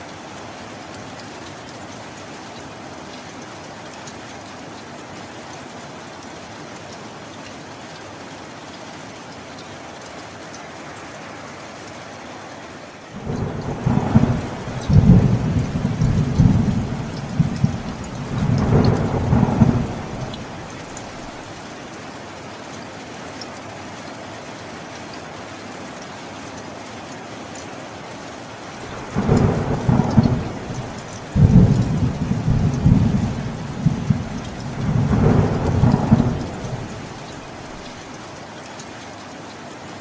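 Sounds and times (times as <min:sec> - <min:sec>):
steady rain: 0:00.0 - 0:40.0
thunder rolling: 0:13.2 - 0:21.4, 0:28.9 - 0:38.0.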